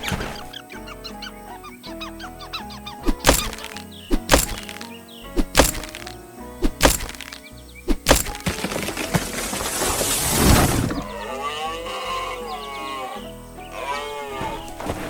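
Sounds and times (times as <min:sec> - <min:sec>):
cartoon background music: 0:00.0 - 0:09.6, 0:10.7 - 0:14.9
loud cracking impacts: 0:03.1 - 0:10.8.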